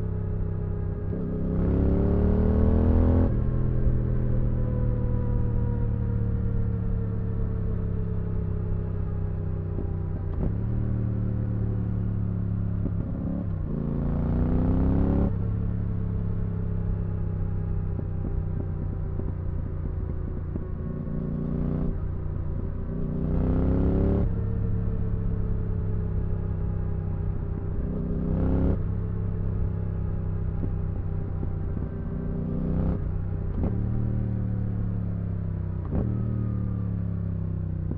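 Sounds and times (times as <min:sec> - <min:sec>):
motorcycle engine revving: 0:09.8 - 0:37.9.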